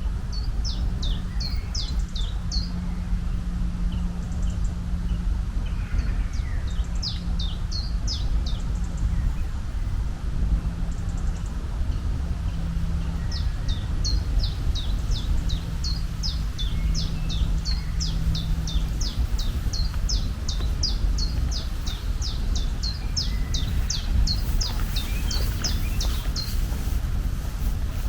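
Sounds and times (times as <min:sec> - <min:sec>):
steady low rumble: 0:00.0 - 0:28.0
bird chirping: 0:12.5 - 0:28.0.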